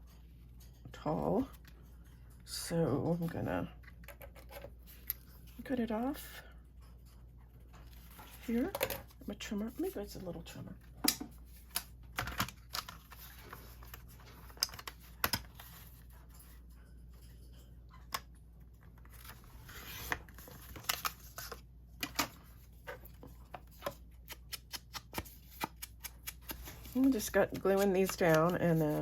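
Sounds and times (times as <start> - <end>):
paper clicks and taps: 23.7 - 29.0.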